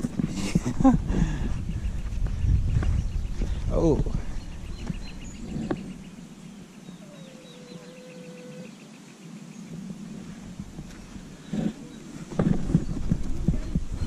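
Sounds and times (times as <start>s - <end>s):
small birds chirping: 0.8s - 14.0s.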